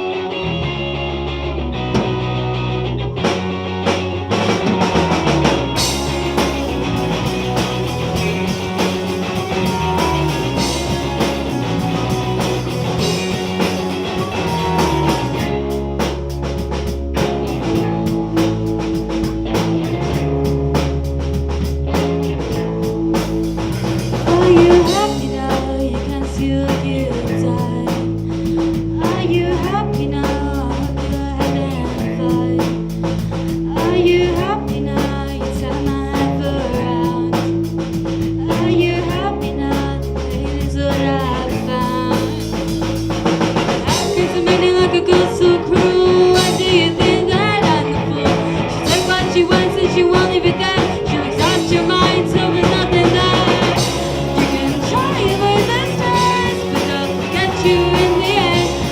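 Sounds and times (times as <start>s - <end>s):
live band playing: 0.0s - 58.9s
person singing: 24.2s - 37.6s, 38.2s - 42.8s, 43.8s - 58.9s.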